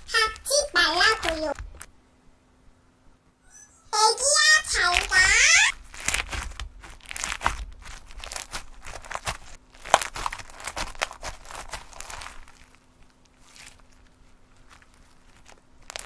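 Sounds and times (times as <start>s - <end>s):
slime squeezed by hand: 4.8s - 16.0s.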